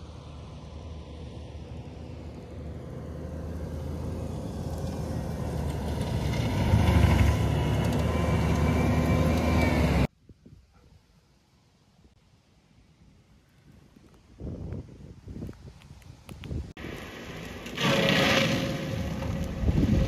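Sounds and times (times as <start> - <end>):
engine and hydraulic drone: 0.0 - 10.1, 16.8 - 20.0.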